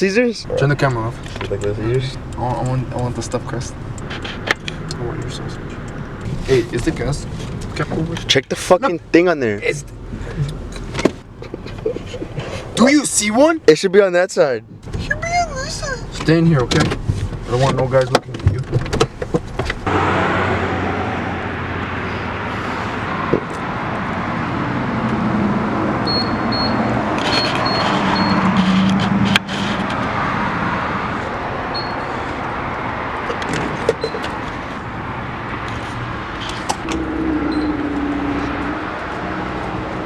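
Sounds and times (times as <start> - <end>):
car engine running: 0.0 - 13.6, 33.2 - 40.0
road noise: 0.0 - 40.0.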